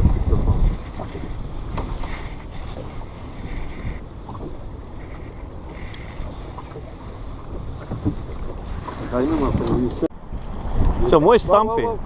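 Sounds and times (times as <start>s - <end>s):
water slapping at a boat: 0.0s - 10.1s
strong wind buffeting microphone: 0.0s - 12.0s.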